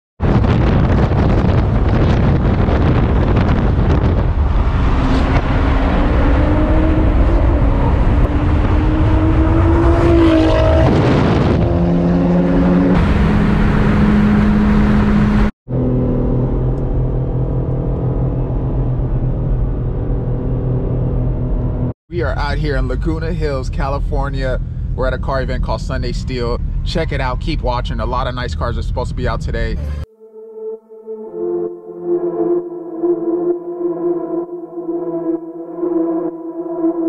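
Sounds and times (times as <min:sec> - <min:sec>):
car engine accelerating: 0:01.2 - 0:22.0.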